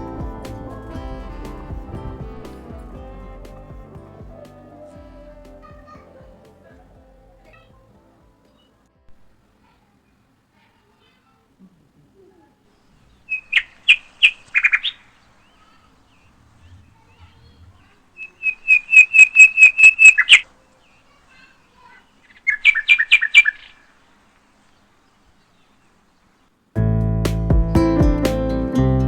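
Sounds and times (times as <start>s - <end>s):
small bird chirping: 13.1s - 24.0s.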